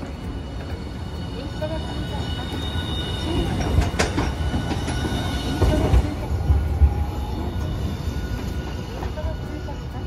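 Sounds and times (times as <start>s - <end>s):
tram wheels rumbling on rails: 0.0s - 10.0s
tram knocks: 3.2s - 7.8s.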